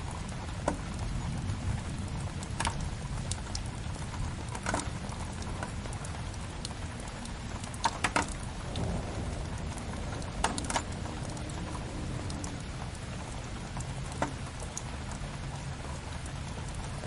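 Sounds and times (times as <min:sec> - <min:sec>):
rain hiss: 0:00.0 - 0:17.0
wood fire crackling and popping: 0:01.4 - 0:06.0, 0:06.6 - 0:14.9
low rumble: 0:08.5 - 0:14.6.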